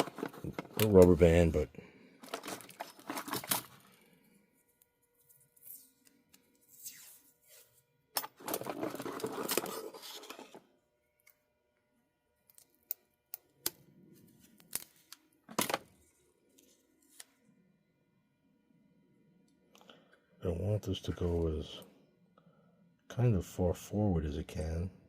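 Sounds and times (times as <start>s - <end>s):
tape and parts rustling: 0.0s - 1.5s, 2.2s - 10.7s, 12.4s - 17.5s.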